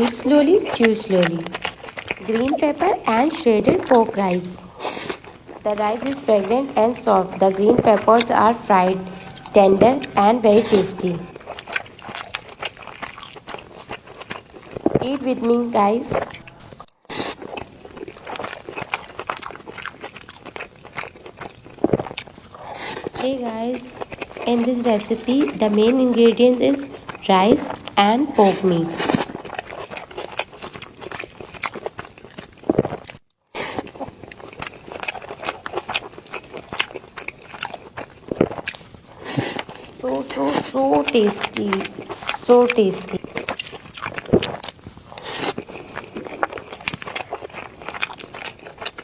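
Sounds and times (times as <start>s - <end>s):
mouth clicks: 0.0s - 11.4s, 22.8s - 29.4s, 39.3s - 43.2s
chewing with crunches: 0.0s - 49.0s.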